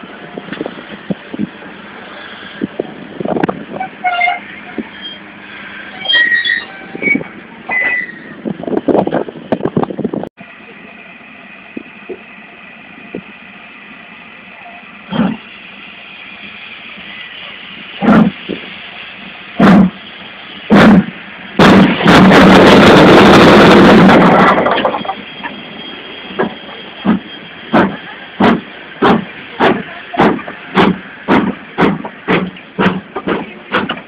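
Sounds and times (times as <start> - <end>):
rushing steam exhaust: 0.0 - 9.6, 10.4 - 34.0
steam locomotive chuffing: 10.4 - 34.0.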